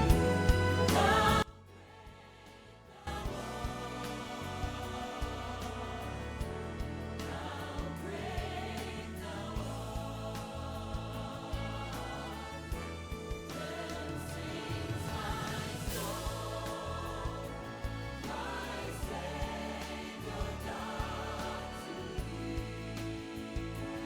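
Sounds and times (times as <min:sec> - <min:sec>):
instrumental accompaniment: 0:00.0 - 0:01.7
choir singing a hymn: 0:00.0 - 0:24.0.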